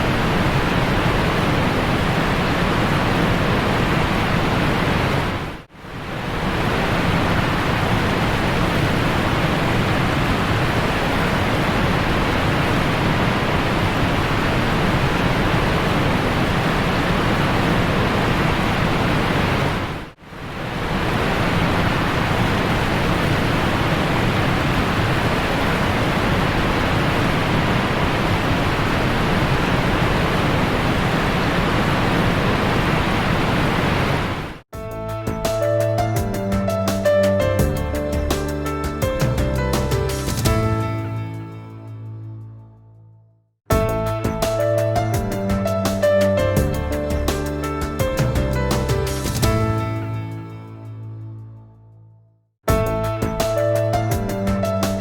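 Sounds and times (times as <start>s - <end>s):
waterfall rushing: 0.0s - 34.6s.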